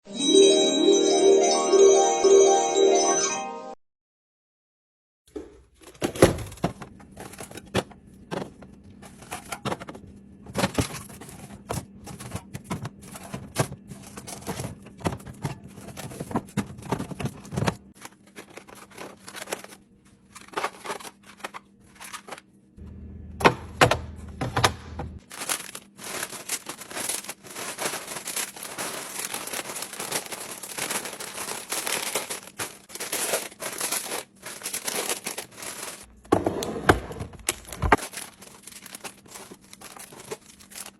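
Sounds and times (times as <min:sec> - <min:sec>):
plastic containers clicking and knocking: 0:05.9 - 0:19.4
crinkling plastic wrappers: 0:10.8 - 0:22.5, 0:25.2 - 0:36.2, 0:37.4 - 0:40.9.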